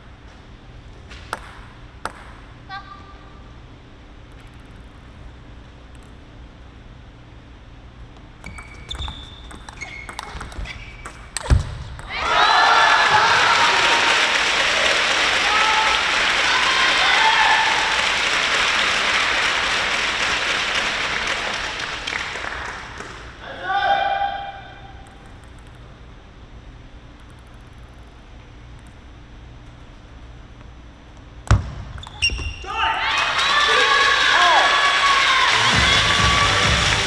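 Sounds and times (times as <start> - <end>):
shoe squeaks on floor: 8.4 - 11.3, 31.9 - 32.7
people shouting: 12.1 - 14.3, 15.4 - 17.9, 32.6 - 37.0
crowd cheering and applauding: 12.1 - 23.3, 33.0 - 37.0
table tennis ball clicking: 25.0 - 25.9.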